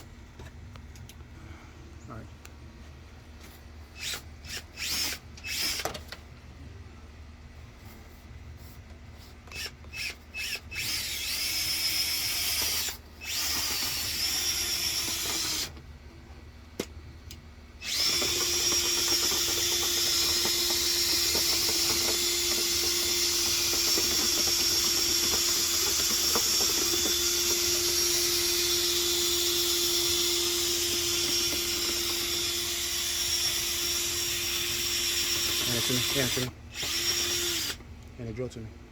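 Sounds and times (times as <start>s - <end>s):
power drill motor whine: 4.0s - 6.0s, 9.5s - 15.8s, 17.8s - 37.8s.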